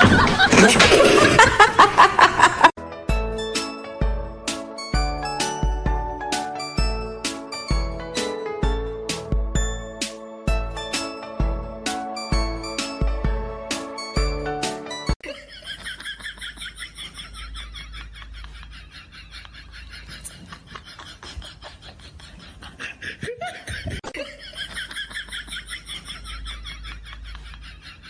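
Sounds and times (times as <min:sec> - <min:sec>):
person laughing hard: 0:00.0 - 0:02.8, 0:15.2 - 0:28.0.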